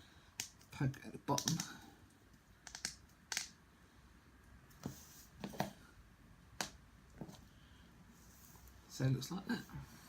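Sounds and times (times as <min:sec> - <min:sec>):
wooden model parts clicking: 0:02.3 - 0:03.6.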